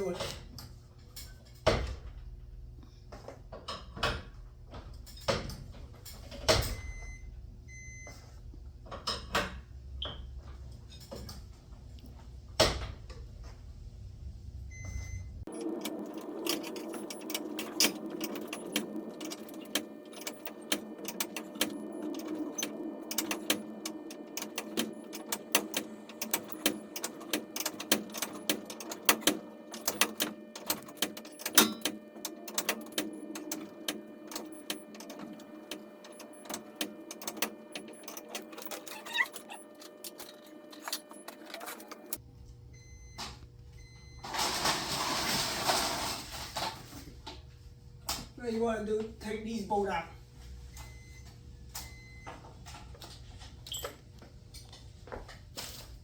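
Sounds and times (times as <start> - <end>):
mechanical hum with rapid clicking: 0.0 - 56.0.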